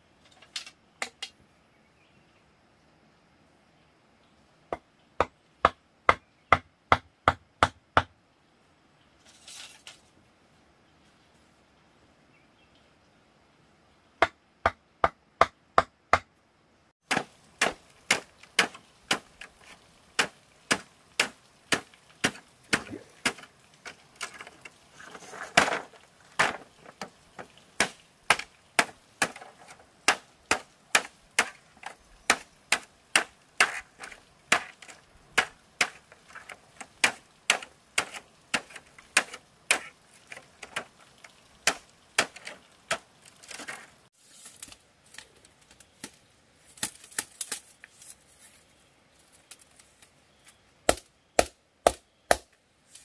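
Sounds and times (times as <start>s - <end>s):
blade chopping on wooden board: 17.1s - 19.3s, 20.2s - 23.5s.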